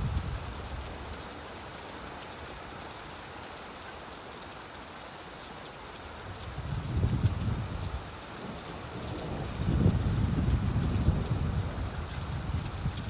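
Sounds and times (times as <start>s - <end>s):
rain pattering: 0.0s - 13.0s
thunder rumble: 8.9s - 13.0s.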